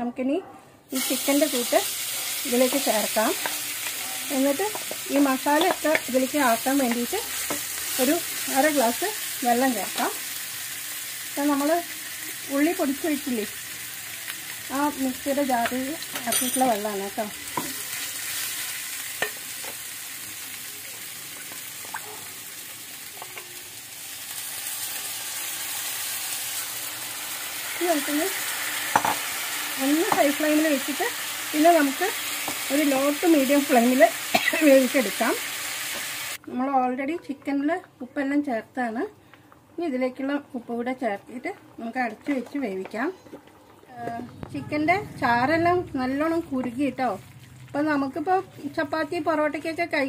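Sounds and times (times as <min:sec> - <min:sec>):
chicken sizzling in hot oil: 0:00.9 - 0:36.4.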